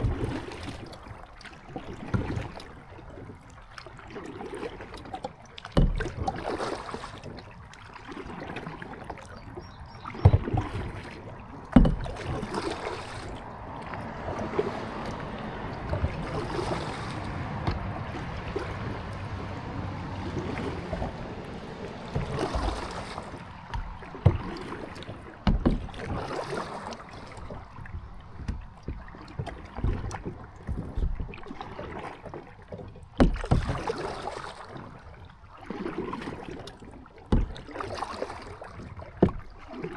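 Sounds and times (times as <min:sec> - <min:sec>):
paddle strokes splashing in water: 0:00.0 - 0:39.9
sharp thumps: 0:17.2 - 0:19.0.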